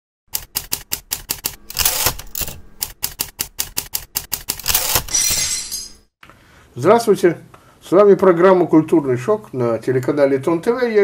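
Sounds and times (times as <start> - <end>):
rapid key clicking: 0.3 - 5.1.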